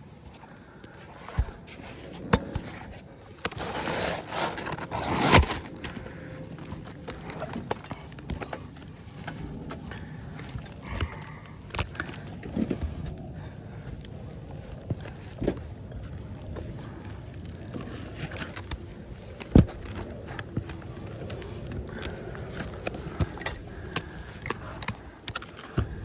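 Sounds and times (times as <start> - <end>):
footfalls on a shingled roof: 0.1 - 26.0
rough scrape: 1.2 - 5.9.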